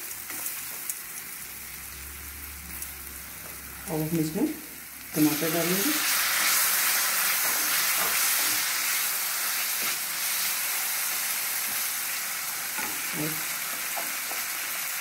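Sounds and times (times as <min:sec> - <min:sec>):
tomatoes sizzling in oil: 0:00.0 - 0:15.0.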